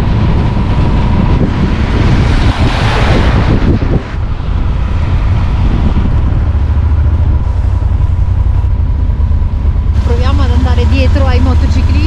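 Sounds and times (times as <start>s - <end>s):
motorcycle engine running: 3.8s - 12.0s.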